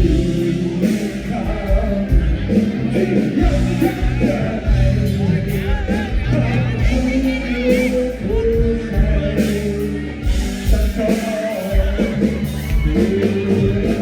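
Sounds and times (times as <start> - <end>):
bass guitar: 0.0 - 14.0
drums: 0.0 - 14.0
person singing: 0.0 - 14.0.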